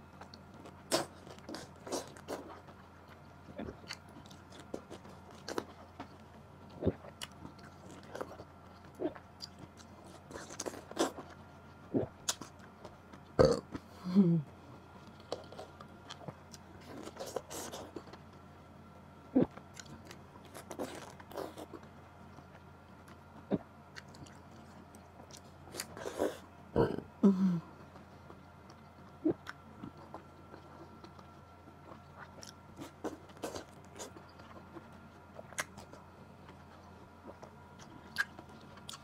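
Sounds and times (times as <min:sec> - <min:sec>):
close chewing with mouth clicks: 0:00.2 - 0:13.9, 0:19.4 - 0:26.5, 0:27.8 - 0:39.0
person burping: 0:13.4 - 0:14.4, 0:26.7 - 0:27.6.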